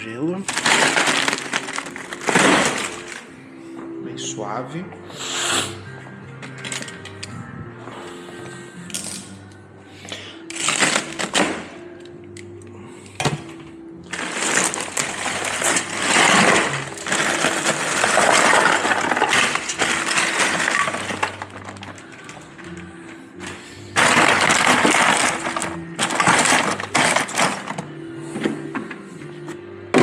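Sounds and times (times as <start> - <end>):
ice cubes clinking: 0.5 - 3.3, 10.5 - 11.7, 14.1 - 23.0, 23.9 - 27.9
ice pouring against cans: 0.5 - 3.3, 10.5 - 11.6, 14.1 - 22.9, 24.0 - 27.9.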